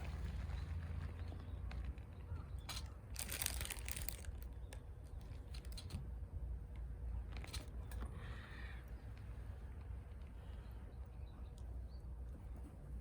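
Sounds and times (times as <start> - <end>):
crinkling and rustling: 0.0 - 6.1.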